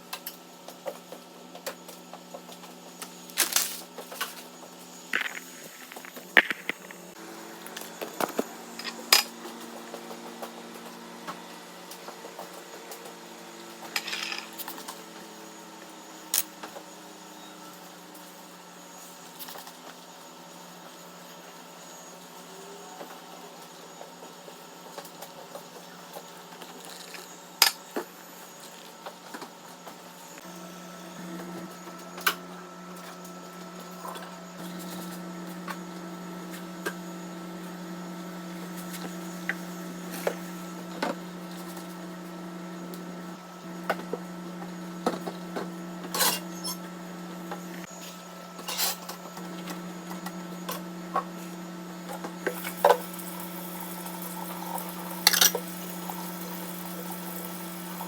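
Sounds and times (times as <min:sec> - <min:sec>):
steady low hum: 0:04.4 - 0:09.3.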